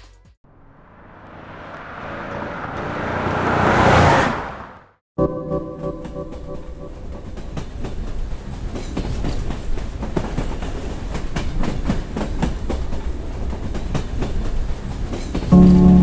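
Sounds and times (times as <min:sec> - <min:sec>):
train wheels clattering on rails: 0:07.2 - 0:15.8.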